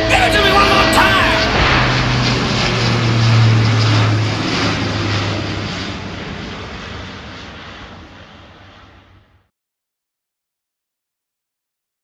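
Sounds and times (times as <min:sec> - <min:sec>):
aircraft engine roar: 0:00.0 - 0:09.5.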